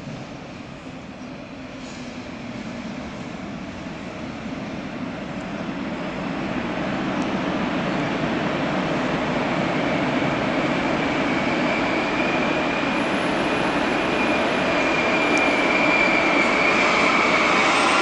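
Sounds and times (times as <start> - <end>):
train rolling in: 0.0 - 18.0
high steady squeal: 9.2 - 18.0.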